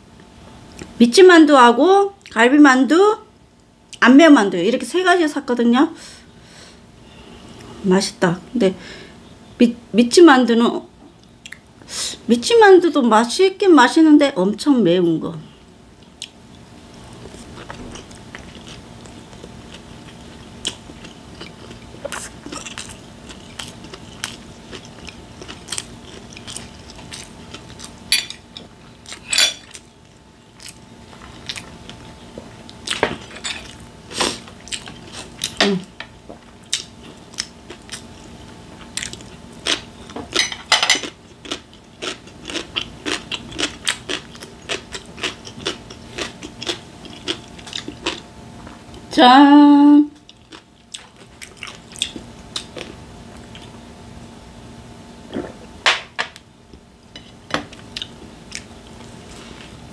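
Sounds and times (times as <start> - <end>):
faint steady hum: 0.0 - 59.9
chewing and wet mouth clicks: 20.6 - 28.0, 38.9 - 39.9, 41.5 - 48.2.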